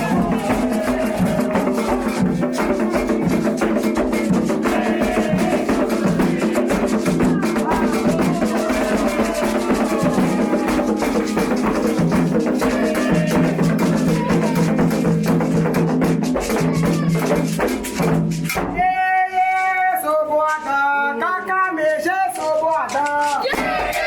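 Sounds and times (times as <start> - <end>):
person singing alone: 0.0 - 2.2, 4.7 - 11.7, 12.6 - 14.8
group chanting: 0.0 - 15.4, 23.4 - 24.0
hand drums: 0.0 - 18.8, 22.0 - 24.0.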